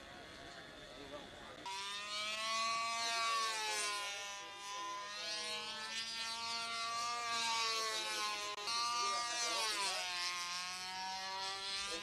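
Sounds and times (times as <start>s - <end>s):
model airplane engine buzzing: 0.0s - 12.0s.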